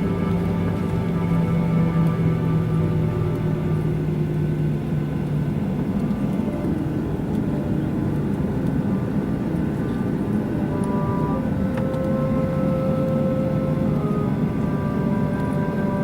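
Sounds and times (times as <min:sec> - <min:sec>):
airliner cabin engine rumble: 0:00.0 - 0:16.0
faint engine tones: 0:00.0 - 0:16.0.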